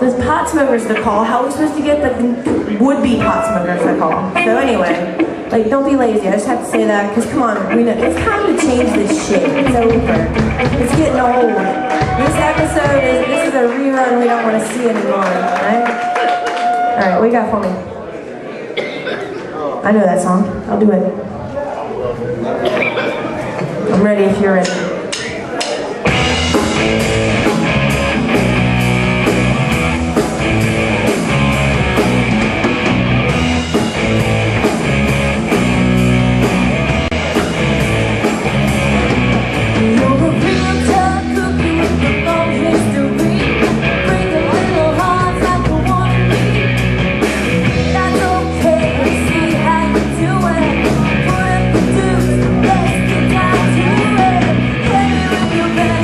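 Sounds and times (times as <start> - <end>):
bass guitar: 0.0 - 14.9, 26.0 - 56.0
electric guitar: 0.0 - 17.0, 26.0 - 56.0
drum kit beat: 2.4 - 15.2, 24.3 - 56.0.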